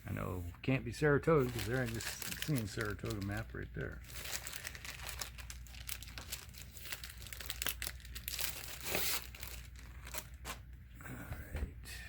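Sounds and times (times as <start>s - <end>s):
paper crinkling and rustling: 1.3s - 10.6s.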